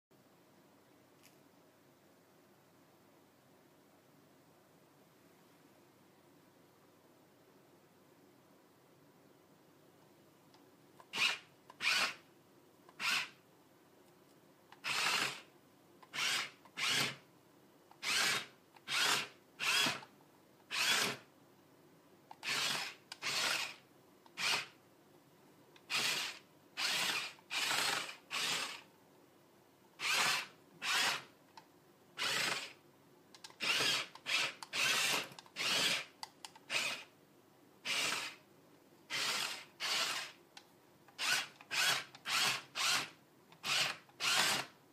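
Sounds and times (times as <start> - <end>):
small electric motor whirring: 11.1 - 12.2, 13.0 - 13.4, 14.8 - 15.5, 16.1 - 17.2, 18.0 - 20.0, 20.7 - 21.2, 22.4 - 23.8, 24.4 - 24.8, 25.9 - 28.9, 30.0 - 31.3, 32.2 - 32.8, 33.6 - 37.1, 37.8 - 38.4, 39.1 - 40.4, 41.2 - 44.7.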